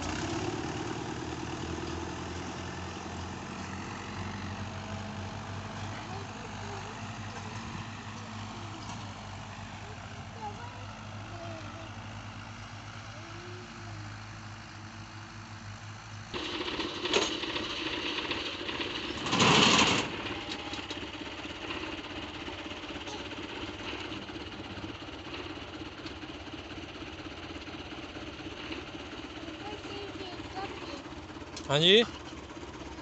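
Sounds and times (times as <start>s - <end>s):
tractor engine revving: 0.0s - 33.0s
loud burst of noise: 16.4s - 20.5s.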